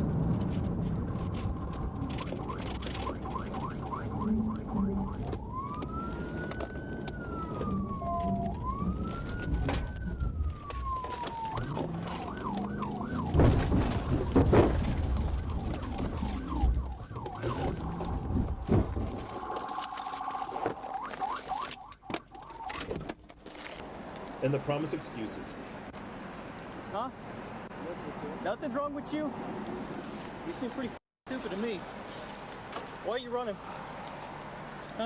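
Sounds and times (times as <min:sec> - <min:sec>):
police siren: 0:01.6 - 0:23.1.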